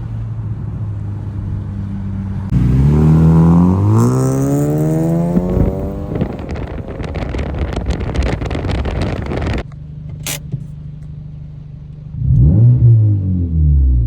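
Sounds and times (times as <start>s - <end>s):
car engine revving: 0.0s - 9.6s, 12.1s - 14.0s
exhaust pops and crackles: 3.8s - 11.2s.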